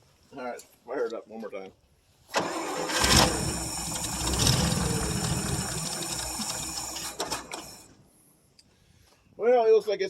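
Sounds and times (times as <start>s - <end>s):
pickup engine cranking and running: 2.3s - 8.0s.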